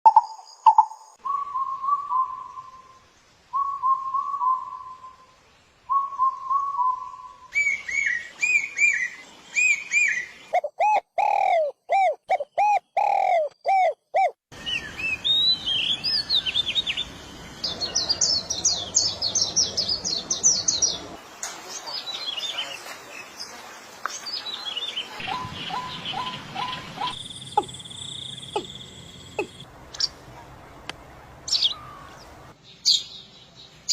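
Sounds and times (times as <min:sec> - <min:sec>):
bird whistles and chirps: 0:05.9 - 0:16.6.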